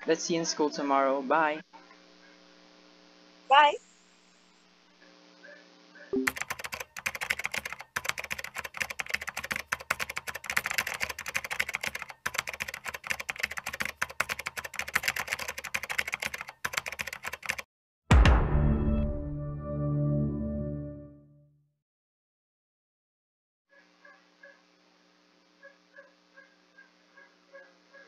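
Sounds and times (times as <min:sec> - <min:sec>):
keyboard typing clicks: 0:06.2 - 0:17.7.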